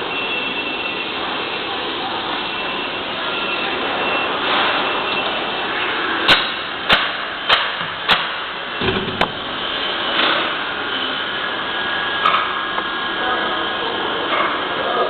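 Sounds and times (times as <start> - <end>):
milling machine whirring: 7.9 - 13.2
low thump: 8.8 - 9.4.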